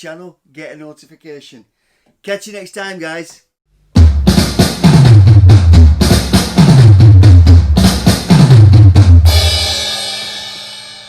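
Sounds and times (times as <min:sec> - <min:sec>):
heavy drum beat with bass: 0:04.0 - 0:10.6
cymbal crash: 0:09.3 - 0:11.0.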